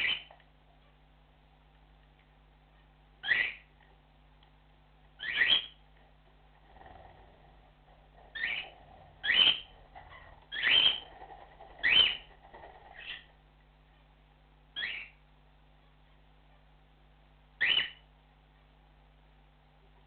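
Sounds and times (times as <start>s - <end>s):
cockatiel whistled chirps: 0.0s - 0.3s, 3.2s - 3.7s, 5.2s - 5.8s, 8.4s - 9.7s, 10.5s - 11.1s, 11.8s - 12.3s, 14.8s - 15.2s, 17.6s - 18.0s.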